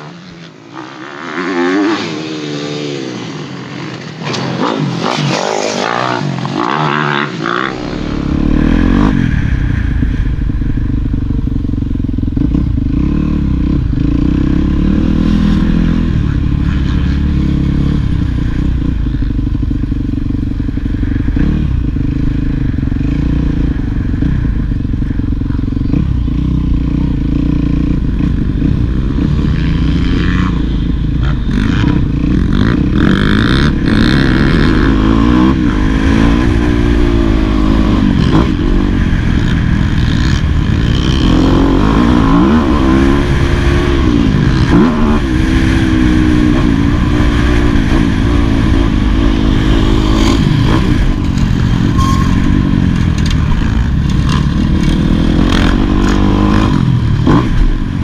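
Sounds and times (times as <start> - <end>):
motocross engine revving: 0.0 - 58.0
engine clatter: 47.1 - 58.0.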